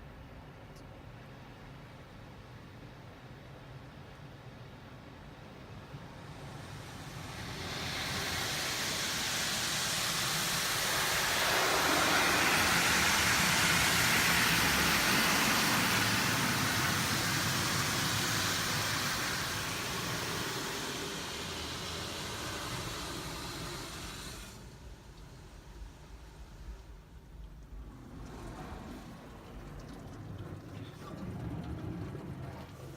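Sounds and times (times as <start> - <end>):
car wash machinery rushing hiss: 4.9 - 32.9.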